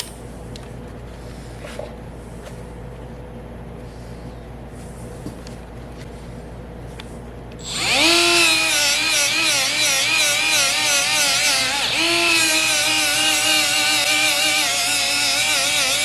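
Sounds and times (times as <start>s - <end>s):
die grinder grinding metal: 7.6s - 16.0s.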